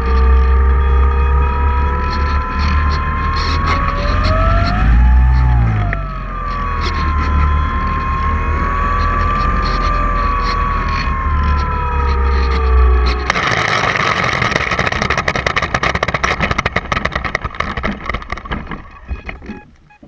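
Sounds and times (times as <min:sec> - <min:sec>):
dense crackling rustle: 0:00.0 - 0:20.0
drone motors whining: 0:00.0 - 0:20.0.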